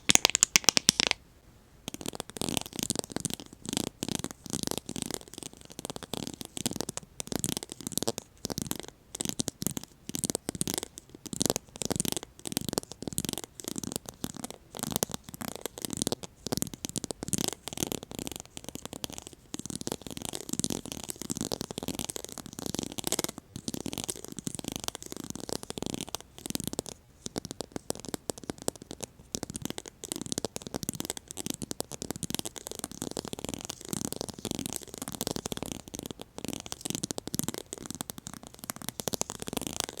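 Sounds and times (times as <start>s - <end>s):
plate being tapped: 0.0s - 1.2s.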